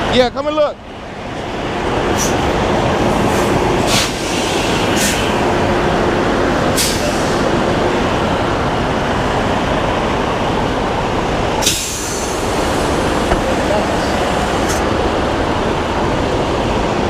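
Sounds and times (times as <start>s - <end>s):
diesel truck engine rumbling: 0.0s - 17.0s
short sharp hisses: 2.2s - 2.4s, 3.3s - 5.4s, 6.8s - 7.4s, 11.6s - 13.0s.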